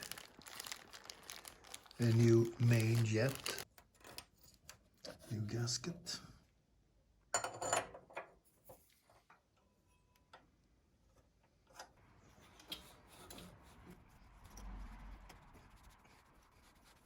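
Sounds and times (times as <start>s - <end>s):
packaging rustling: 0.0s - 3.8s.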